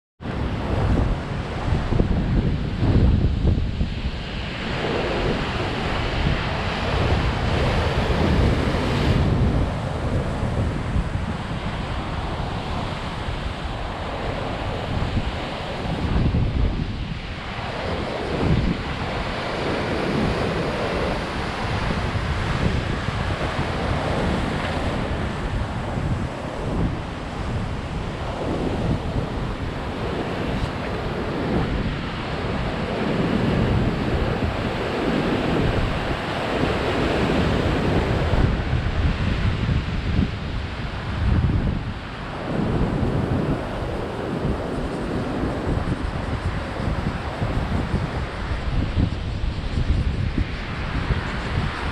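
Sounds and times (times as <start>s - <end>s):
rough water rushing: 0.2s - 51.9s
wind buffeting microphone: 0.2s - 51.9s.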